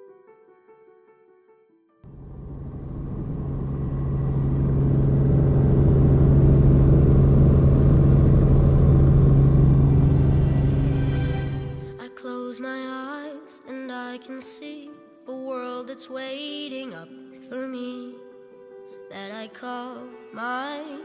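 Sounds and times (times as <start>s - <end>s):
helicopter engine and rotor: 2.1s - 11.9s.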